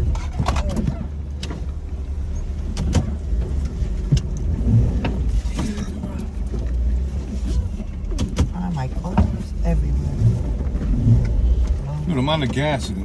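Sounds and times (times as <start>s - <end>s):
engine rumbling: 0.0s - 13.0s
knocks and clunks: 0.0s - 13.0s.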